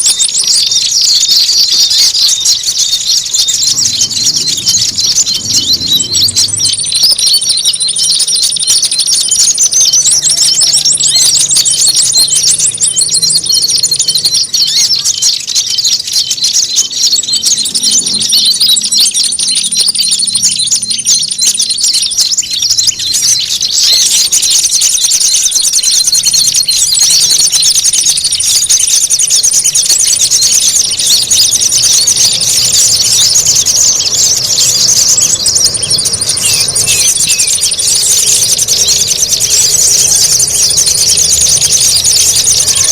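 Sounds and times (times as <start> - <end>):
high buzzing bird trill: 0.0 - 42.9
songbirds chirping and trilling: 0.0 - 42.9.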